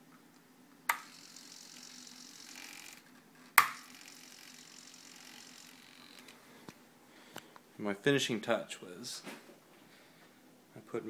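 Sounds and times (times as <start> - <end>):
faint servo whir: 1.0 - 6.4.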